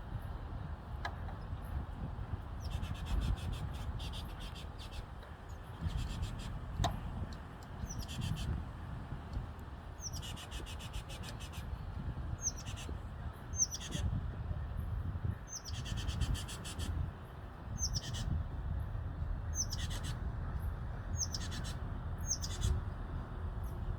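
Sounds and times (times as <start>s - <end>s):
bird chirp and buzzy rattle: 2.6s - 8.6s, 10.0s - 11.8s, 12.4s - 12.9s, 13.5s - 14.0s, 15.5s - 17.0s, 17.8s - 18.4s, 19.5s - 20.2s, 21.1s - 22.8s.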